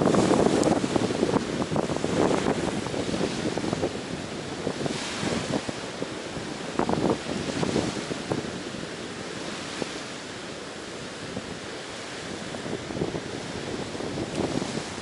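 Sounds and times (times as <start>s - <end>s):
ocean surf on beach: 0.0s - 15.0s.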